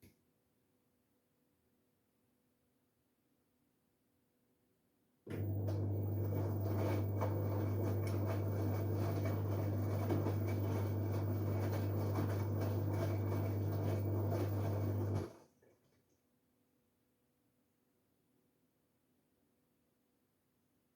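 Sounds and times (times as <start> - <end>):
washing machine hum: 5.3 - 15.9.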